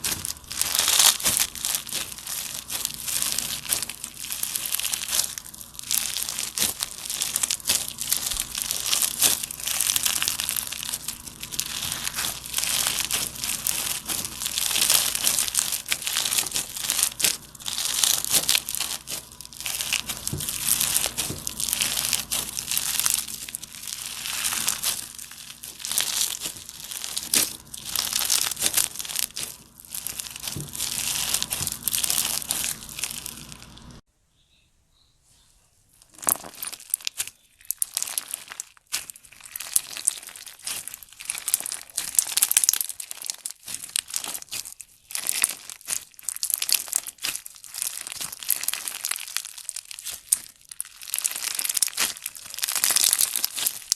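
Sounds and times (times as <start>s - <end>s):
slime squeezed crackling: 0.0s - 34.0s, 36.0s - 53.9s.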